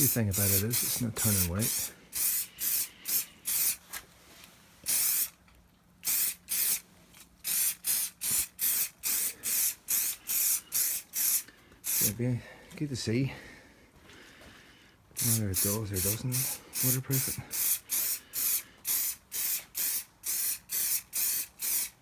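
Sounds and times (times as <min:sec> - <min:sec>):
spray can hissing in bursts: 0:00.0 - 0:03.8, 0:04.8 - 0:05.4, 0:06.0 - 0:06.8, 0:07.4 - 0:12.1, 0:15.2 - 0:22.0.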